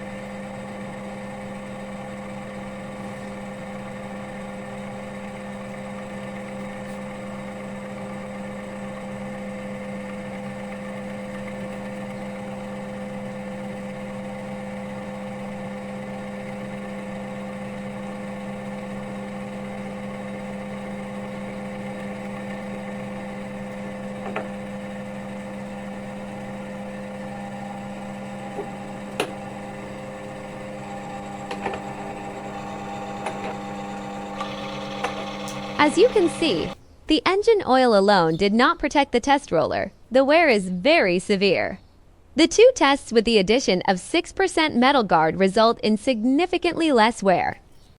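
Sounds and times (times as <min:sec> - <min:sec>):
electric motor humming: 0:00.0 - 0:36.8.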